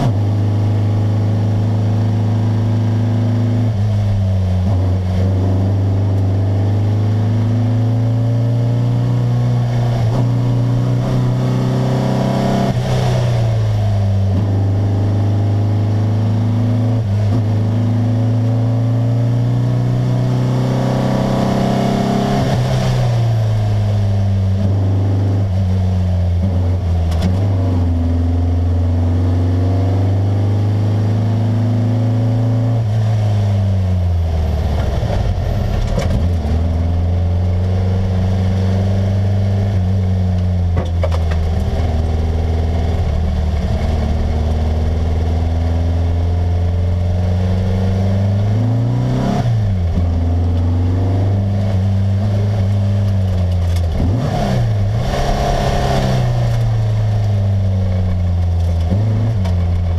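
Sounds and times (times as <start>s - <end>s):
car engine under hard load: 0.0s - 59.9s.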